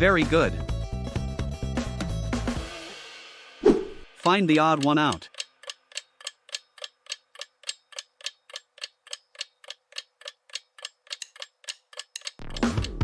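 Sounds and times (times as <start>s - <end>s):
clock ticking: 4.1s - 13.0s.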